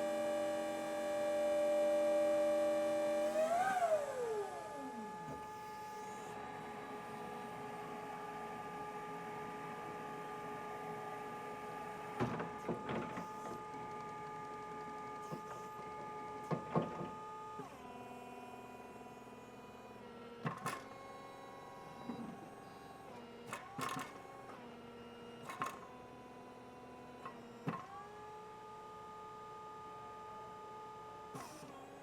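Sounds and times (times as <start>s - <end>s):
electric motor whine: 0.0s - 19.2s.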